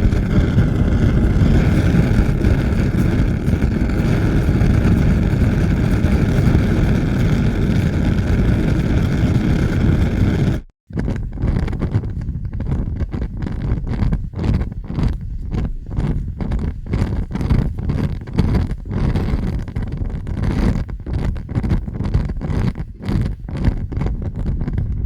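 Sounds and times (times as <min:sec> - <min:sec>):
fire low rushing noise: 0:00.0 - 0:10.7
fire crackling with pops: 0:00.0 - 0:25.0.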